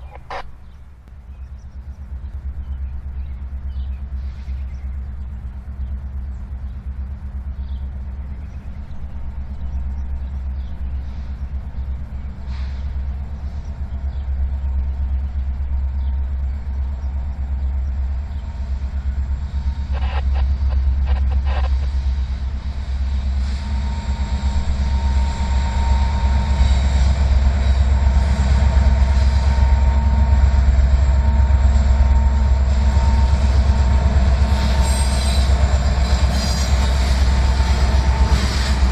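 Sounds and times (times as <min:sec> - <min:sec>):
locomotive rumble: 0:00.0 - 0:38.9
train clatter: 0:00.0 - 0:38.9
wheel squeal on rails: 0:34.4 - 0:38.9.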